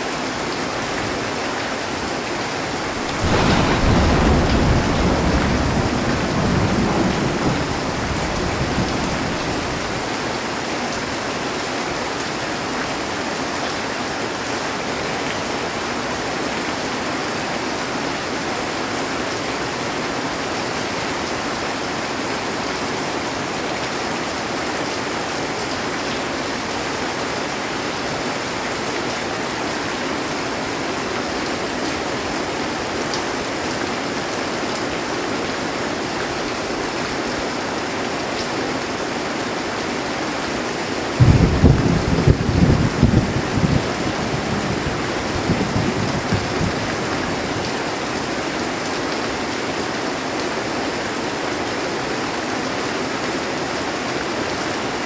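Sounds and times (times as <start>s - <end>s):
heavy rain on metal roof: 0.0s - 55.0s
low thunder rumble: 2.8s - 10.1s, 41.2s - 47.7s.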